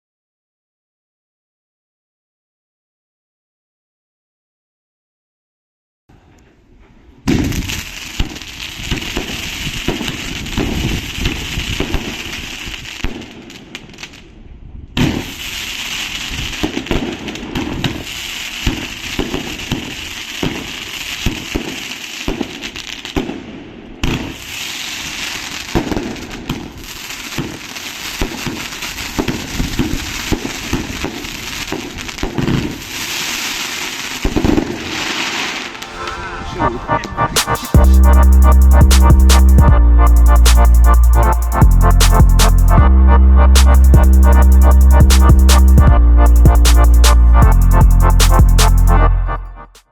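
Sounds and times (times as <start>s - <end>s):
fireworks hissing and crackling: 7.3s - 14.3s, 15.0s - 36.1s
fireworks launch thumps and bursts: 45.0s - 46.0s.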